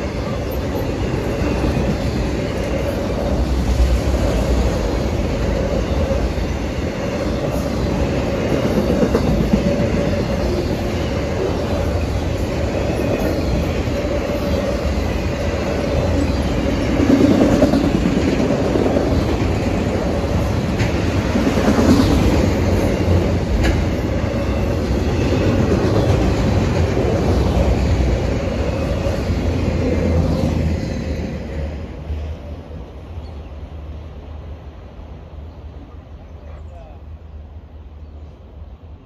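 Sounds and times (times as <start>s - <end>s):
train wheels rumbling on rail: 0.0s - 39.0s
wheels clickety-clack: 7.4s - 11.5s, 16.1s - 29.0s.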